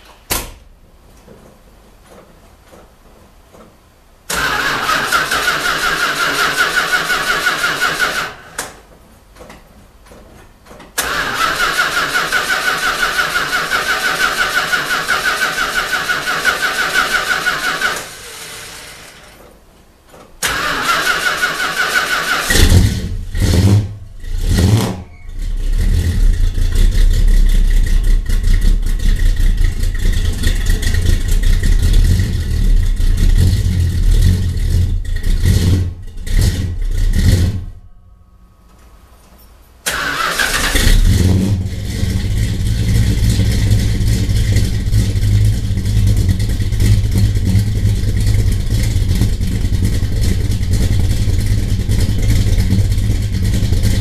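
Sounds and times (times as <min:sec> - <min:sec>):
engine running unevenly then idling: 0:41.7 - 0:54.0.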